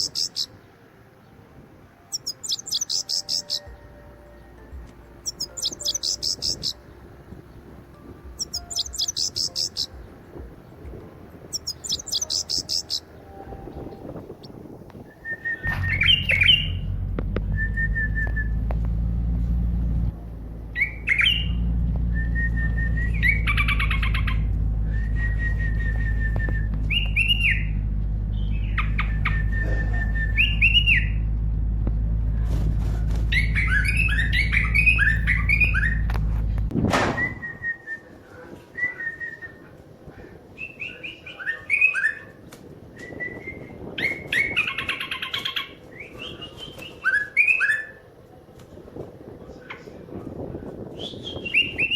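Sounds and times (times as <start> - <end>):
birds chirping: 0.0 - 48.2
steady low rumble: 2.1 - 37.7.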